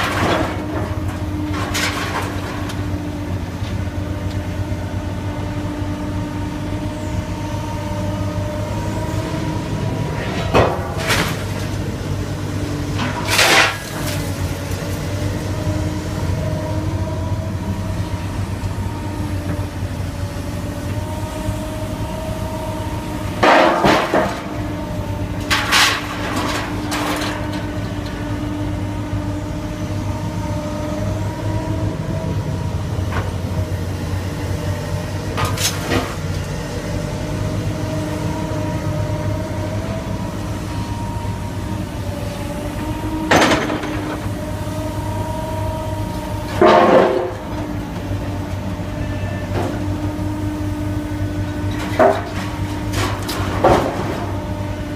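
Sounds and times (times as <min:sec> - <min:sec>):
metal crashes and crunches: 0:00.0 - 0:02.9, 0:10.2 - 0:11.8, 0:13.0 - 0:15.0, 0:23.3 - 0:24.7, 0:25.4 - 0:28.0, 0:35.3 - 0:36.3, 0:43.3 - 0:44.4, 0:46.4 - 0:47.7, 0:51.7 - 0:54.4
engine and hydraulic drone: 0:00.0 - 0:54.9.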